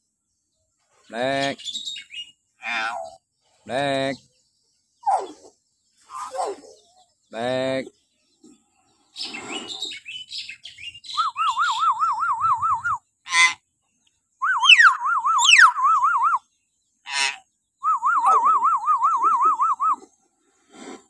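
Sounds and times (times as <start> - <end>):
bird harsh squawks: 2.6 - 3.2, 6.0 - 6.8, 9.2 - 10.4, 13.3 - 13.6, 17.1 - 17.4
myna shrill wavering whistle: 14.4 - 16.4, 17.8 - 20.0.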